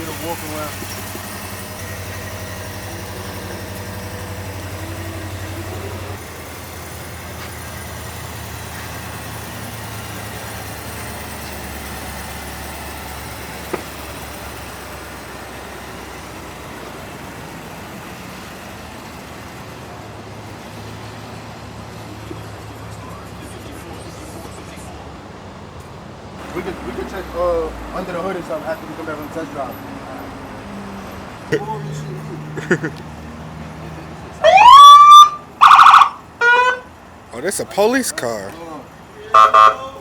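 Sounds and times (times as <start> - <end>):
vehicle engine idling: 0.0 - 40.0.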